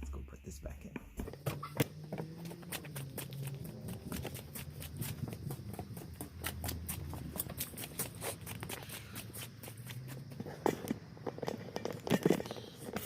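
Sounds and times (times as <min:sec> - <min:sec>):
footsteps walking: 0:01.0 - 0:12.2.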